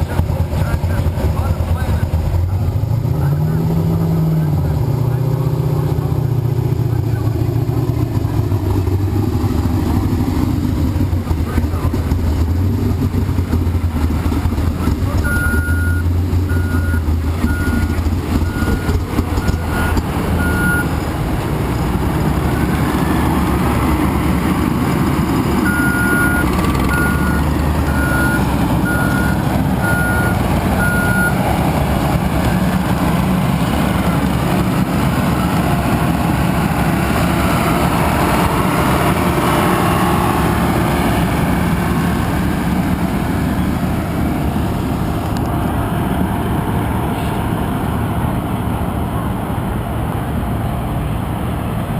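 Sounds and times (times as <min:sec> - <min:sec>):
heavy engine noise: 0:00.0 - 0:51.9
reversing alarm beeping: 0:15.2 - 0:20.9, 0:25.6 - 0:31.4.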